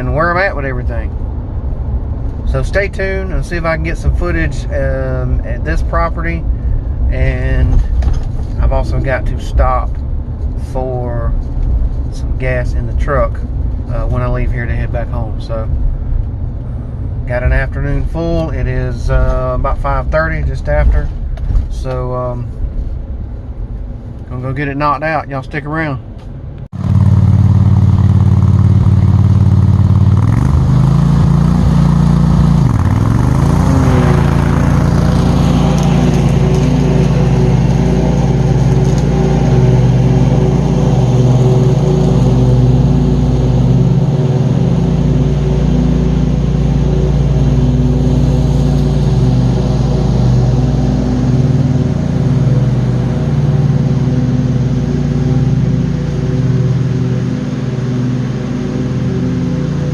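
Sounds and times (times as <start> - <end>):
mower engine running: 26.8 - 59.9.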